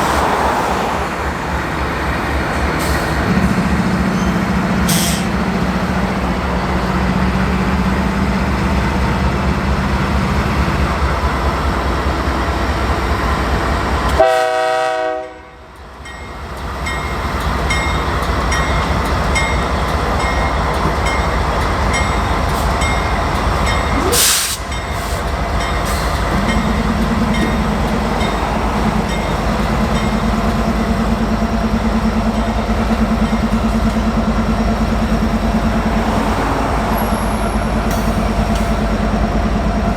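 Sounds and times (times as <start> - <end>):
diesel locomotives running: 0.0 - 39.9
train horn blast: 14.1 - 15.7.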